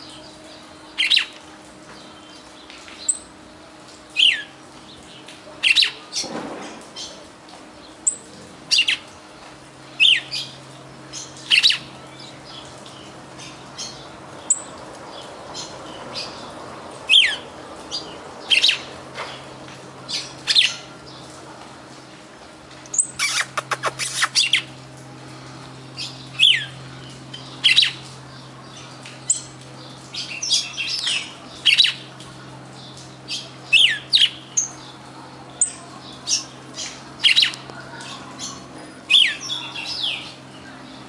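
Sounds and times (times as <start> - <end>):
songbird calls: 22.9 - 24.7.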